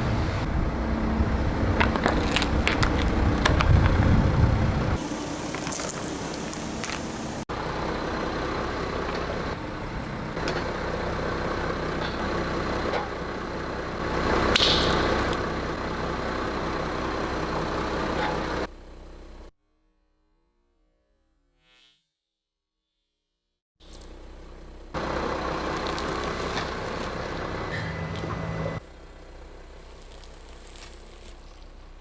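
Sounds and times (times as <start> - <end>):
car engine running: 0.0 - 19.5, 23.8 - 32.0
tyre crunching over object: 5.0 - 7.2, 29.9 - 31.7.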